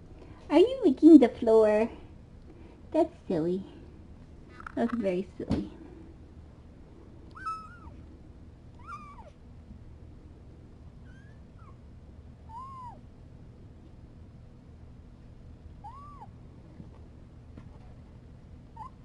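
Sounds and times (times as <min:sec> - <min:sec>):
kitten mewing: 0:07.3 - 0:08.0, 0:08.8 - 0:09.4, 0:12.5 - 0:13.0, 0:15.8 - 0:16.3.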